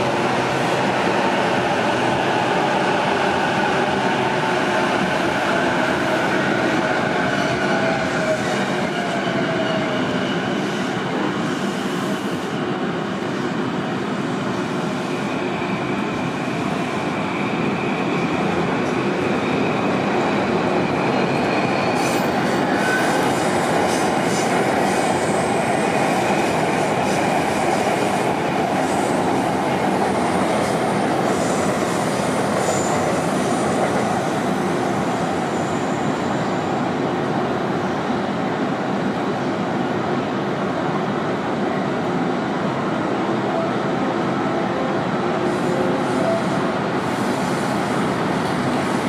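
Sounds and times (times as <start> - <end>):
high wheel squeal: 21.1 - 23.5.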